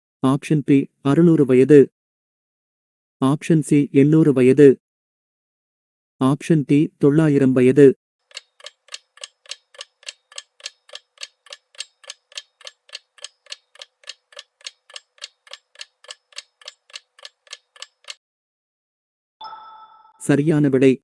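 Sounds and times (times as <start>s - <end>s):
clock ticking: 8.2s - 18.2s.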